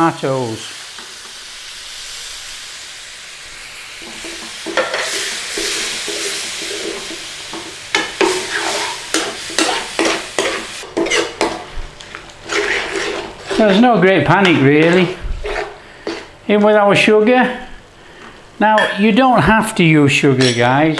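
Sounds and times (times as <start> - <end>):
curry sizzling in a pan: 0.0 - 16.4
spoon scraping a pan: 7.9 - 11.6, 12.4 - 13.8, 14.4 - 16.4.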